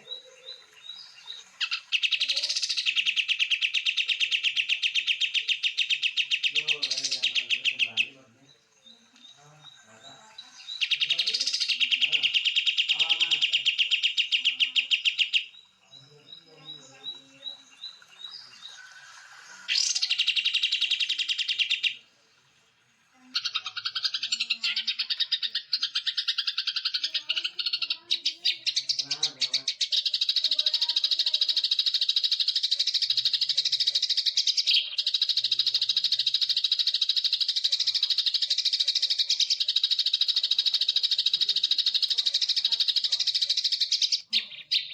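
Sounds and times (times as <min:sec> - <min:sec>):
songbirds chirping trills: 0:00.0 - 0:44.9.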